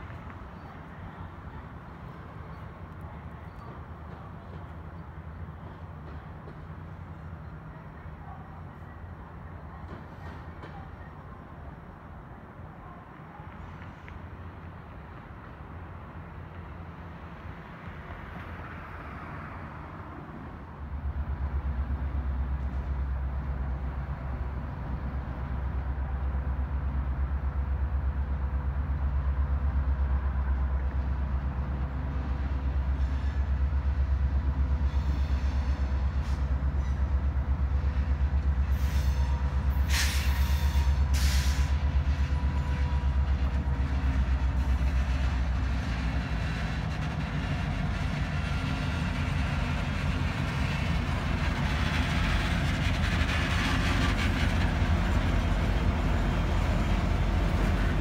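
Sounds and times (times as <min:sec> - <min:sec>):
diesel locomotive rumbling: 0:00.0 - 0:58.0.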